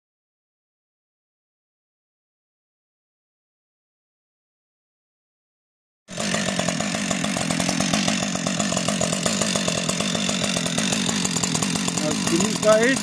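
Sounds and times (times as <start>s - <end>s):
chainsaw idling: 6.1s - 13.0s.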